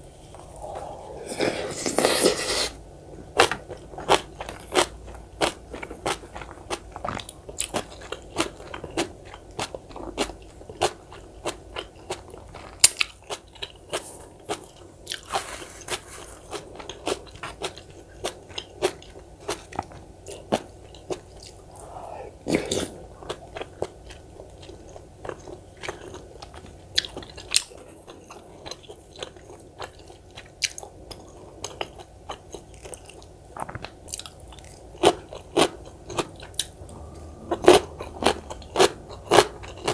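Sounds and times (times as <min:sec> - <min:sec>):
slurp: 0:00.5 - 0:02.8
crisp wet crunching and chewing: 0:03.4 - 0:21.6, 0:22.7 - 0:36.8.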